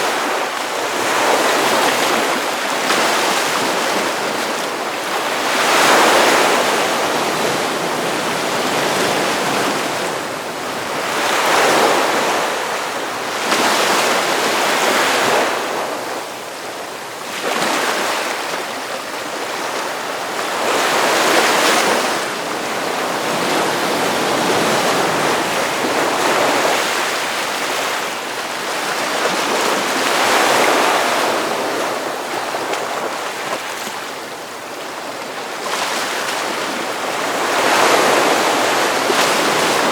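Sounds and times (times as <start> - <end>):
ocean waves crashing: 0.0 - 39.9.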